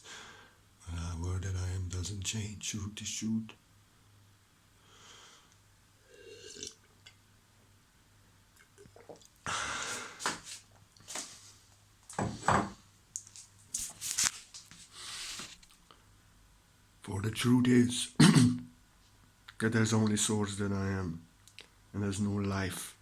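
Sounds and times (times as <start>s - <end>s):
person breathing close to microphone: 0.0s - 0.6s, 4.8s - 5.6s, 9.5s - 10.6s
faint steady hum: 0.0s - 23.0s.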